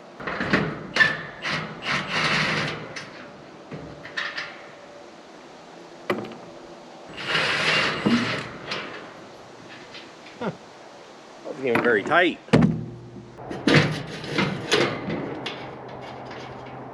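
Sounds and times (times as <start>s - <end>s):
metal tools clanking and scraping: 0.2s - 5.0s, 7.1s - 10.6s, 12.8s - 16.9s
sharp metal knocks: 11.7s - 16.7s.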